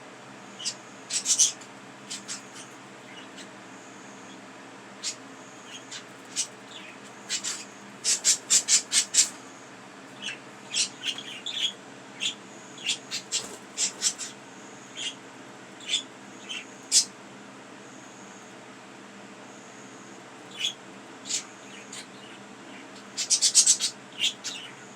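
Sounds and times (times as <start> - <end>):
budgerigars chirping and squawking: 0.5 - 3.6, 4.2 - 9.4, 10.1 - 15.2, 15.8 - 17.1, 20.5 - 24.9.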